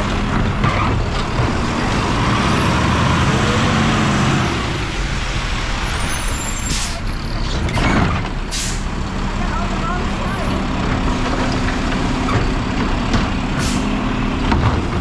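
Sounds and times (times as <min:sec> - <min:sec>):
garbage truck engine running: 0:00.0 - 0:15.0
short sharp hisses: 0:08.5 - 0:08.8.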